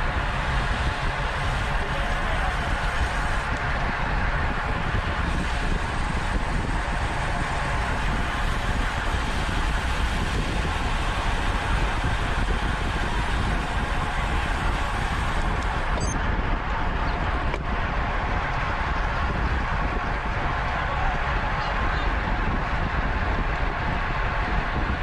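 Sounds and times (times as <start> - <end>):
bicycle road noise: 0.0 - 25.0
wind rushing on microphone: 0.0 - 25.0.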